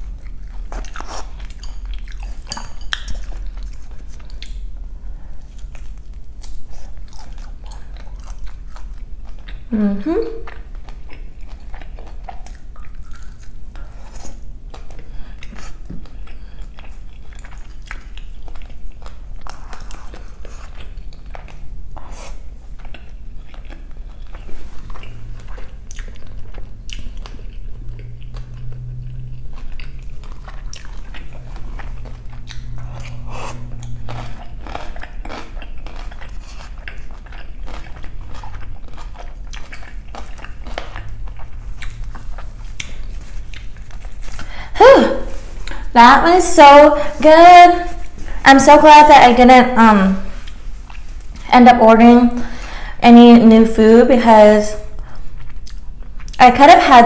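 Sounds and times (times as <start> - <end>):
crunchy chewing: 0.0 - 9.7, 10.4 - 44.6
wet mouth sounds: 5.4 - 48.3.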